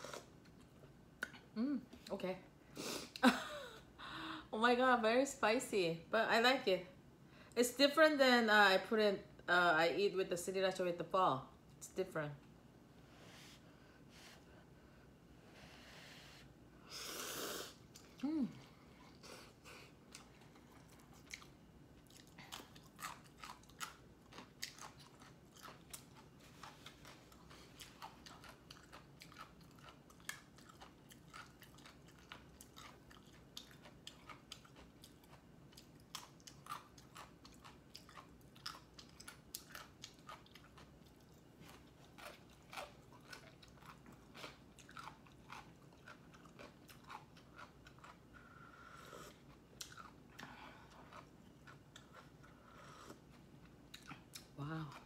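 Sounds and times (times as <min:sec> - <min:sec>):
person chewing noodles: 0:17.2 - 0:55.0.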